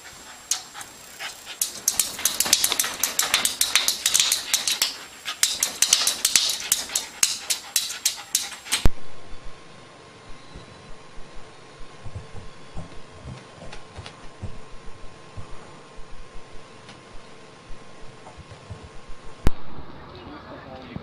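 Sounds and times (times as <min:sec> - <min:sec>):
animal tapping at a mirror: 0:01.6 - 0:08.8.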